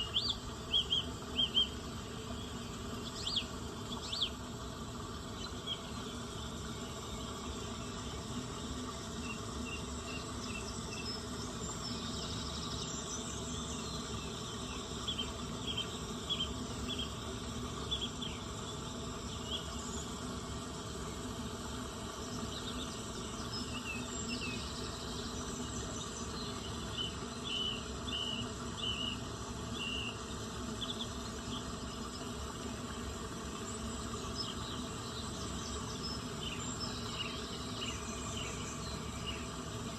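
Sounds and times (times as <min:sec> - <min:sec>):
chorus of crickets: 0:00.0 - 0:04.4, 0:05.4 - 0:20.7, 0:22.2 - 0:32.3.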